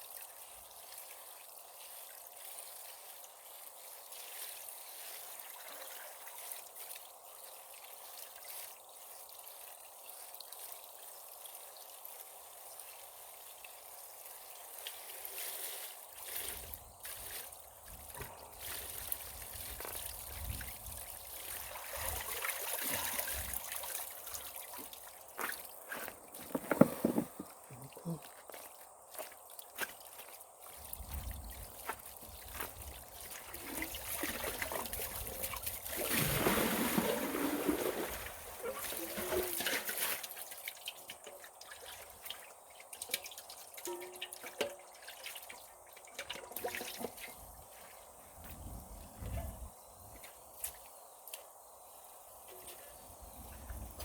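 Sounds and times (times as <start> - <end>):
water trickling: 16.0 - 47.9
handling and rustling noise: 24.8 - 27.9.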